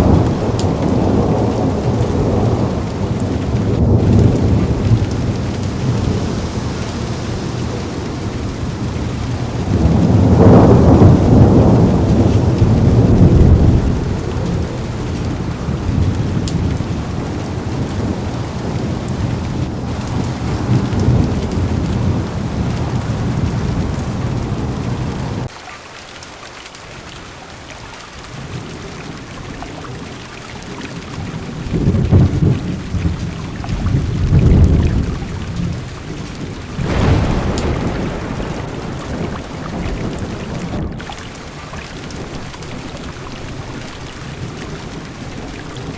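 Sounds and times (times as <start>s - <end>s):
thunder rolling: 0.0s - 25.5s, 31.2s - 45.9s
heavy rain on car window: 0.0s - 45.9s.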